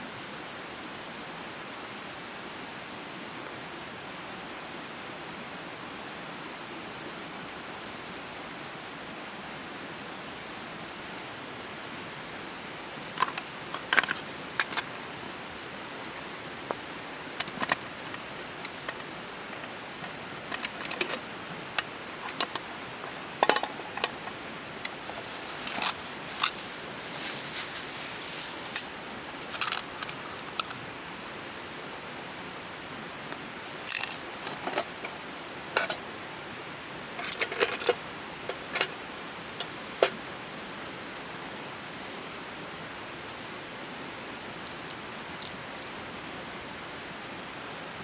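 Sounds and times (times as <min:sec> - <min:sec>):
steady hiss: 0:00.0 - 0:48.0
rustling: 0:22.2 - 0:29.8
metallic clicks and clinks: 0:33.6 - 0:34.9.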